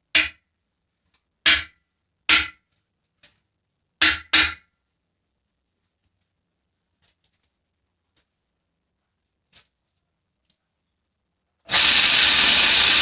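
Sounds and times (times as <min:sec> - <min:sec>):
sharp knocks: 0:01.4 - 0:02.6.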